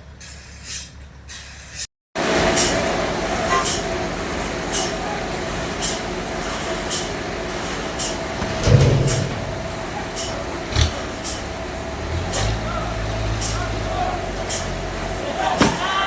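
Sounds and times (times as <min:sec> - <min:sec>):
heavy low thump: 0:08.4 - 0:11.0.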